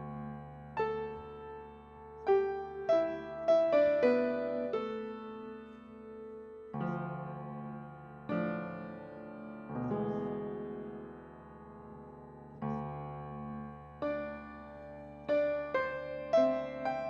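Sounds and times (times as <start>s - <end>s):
piano chords ringing: 0.0s - 17.0s.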